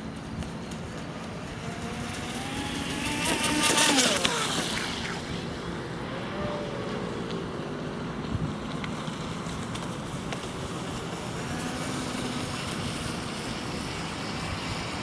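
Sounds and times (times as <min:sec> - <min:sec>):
electric motor whining: 0:01.4 - 0:07.6.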